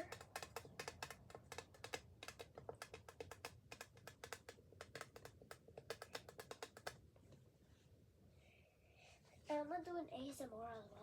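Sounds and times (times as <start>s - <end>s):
light clicking and tapping: 0.0s - 7.4s.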